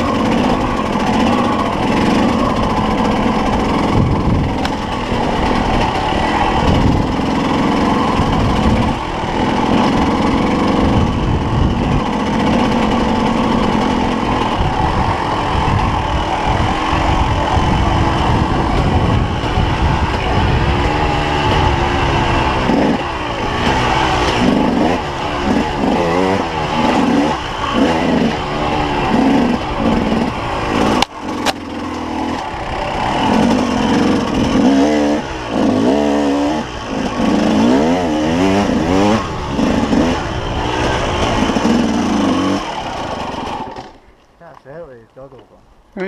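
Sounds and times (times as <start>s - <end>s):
motorcycle engine revving: 0.0s - 45.4s
sharp click: 30.9s - 32.4s.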